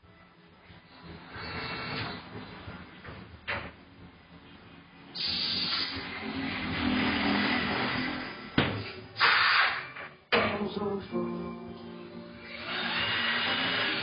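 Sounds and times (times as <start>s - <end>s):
compressed air hissing: 5.1s - 6.1s, 9.2s - 9.8s.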